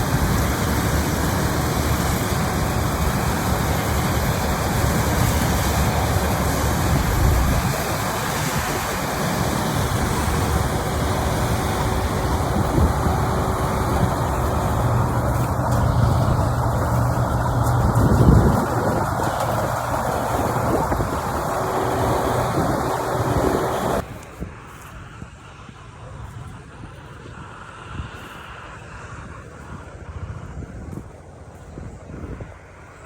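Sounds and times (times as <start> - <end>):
harvesting machine engine running: 0.0 - 24.4.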